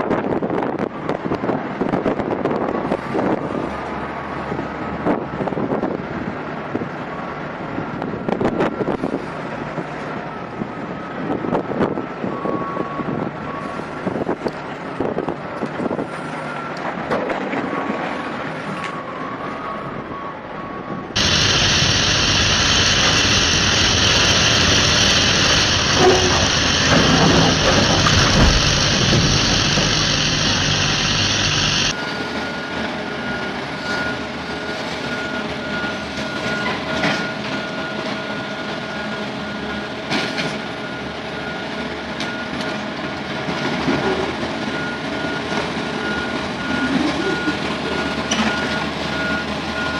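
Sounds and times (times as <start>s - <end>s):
heavy earthmoving machinery: 0.0s - 49.9s
steady high tone: 21.2s - 32.6s.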